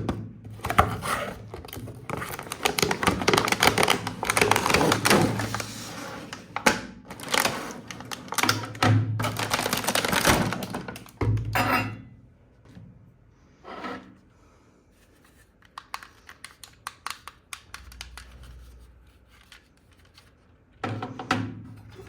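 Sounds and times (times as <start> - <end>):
packaging rustling: 0.6 - 11.2.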